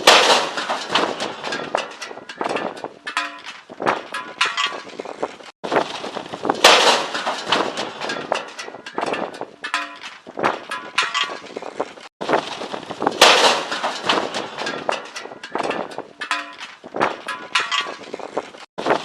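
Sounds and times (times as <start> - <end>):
high wind: 0.0 - 19.0
metal barbecue crashing: 0.0 - 19.0
metal clattering and rattling: 0.0 - 19.0.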